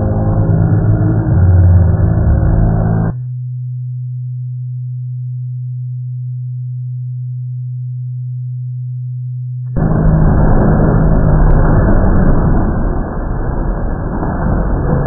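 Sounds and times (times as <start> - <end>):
loud low rumbling: 0.0 - 3.2, 9.7 - 15.0
steady low hum: 0.0 - 3.5, 4.6 - 15.0.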